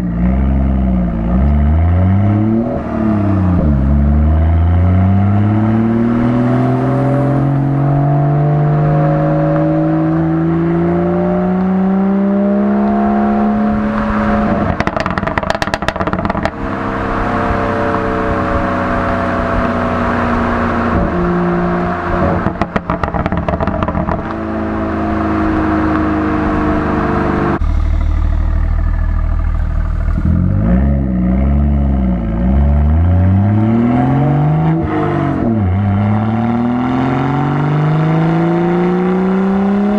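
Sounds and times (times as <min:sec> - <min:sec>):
car engine revving: 0:00.0 - 0:39.9
exhaust crackles and pops: 0:13.9 - 0:16.6, 0:22.2 - 0:24.4, 0:27.6 - 0:30.6.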